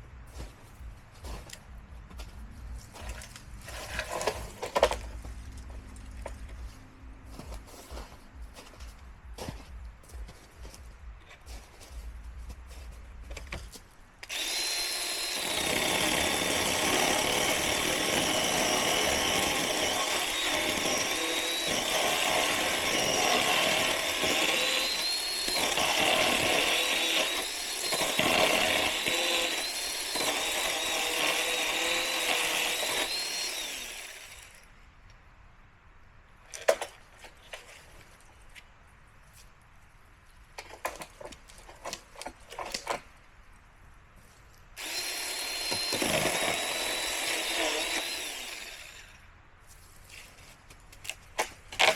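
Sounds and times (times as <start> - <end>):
electric chainsaw cutting wood: 14.2 - 34.6, 44.8 - 49.2.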